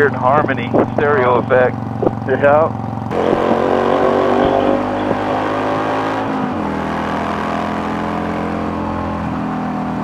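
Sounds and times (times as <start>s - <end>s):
motorcycle engine cruising: 0.0s - 10.0s
riding wind rushing: 3.1s - 6.8s.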